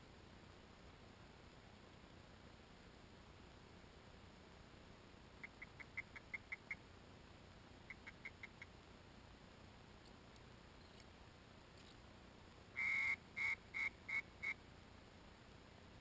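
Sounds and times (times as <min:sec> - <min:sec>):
bird chirping: 0:05.4 - 0:06.8, 0:07.8 - 0:08.7, 0:12.8 - 0:14.6.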